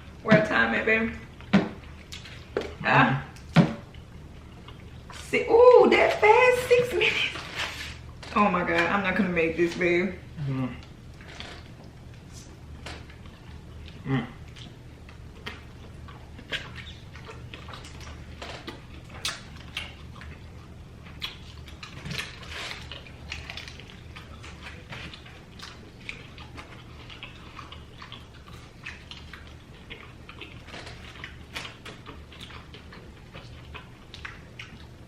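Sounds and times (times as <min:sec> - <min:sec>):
steady low hum: 0:00.0 - 0:35.0
wet chewing and lip-smacking: 0:01.2 - 0:05.3, 0:10.8 - 0:35.0.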